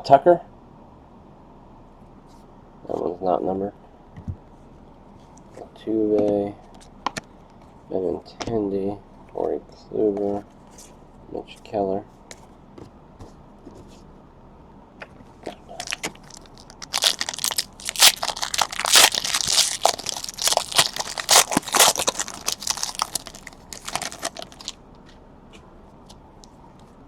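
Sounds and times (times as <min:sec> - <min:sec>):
wrapper being torn and crinkled: 0:15.8 - 0:24.8.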